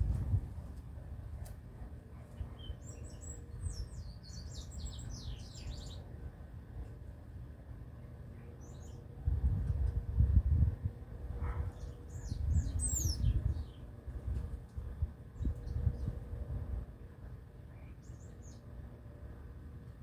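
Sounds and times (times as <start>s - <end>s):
songbird chirping: 2.3s - 6.1s.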